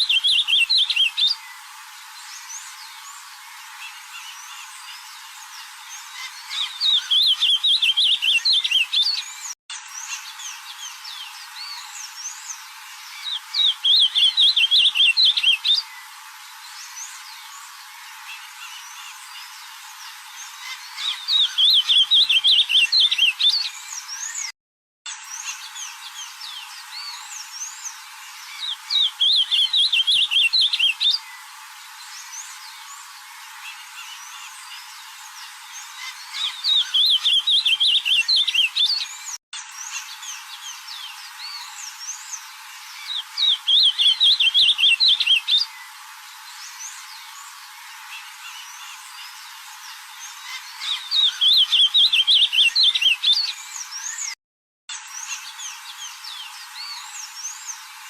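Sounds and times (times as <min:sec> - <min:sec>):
bird singing warbled phrase: 0:20.6 - 0:23.8, 0:28.7 - 0:31.2, 0:36.0 - 0:39.1
faint calls of other birds: 0:25.4 - 0:54.4.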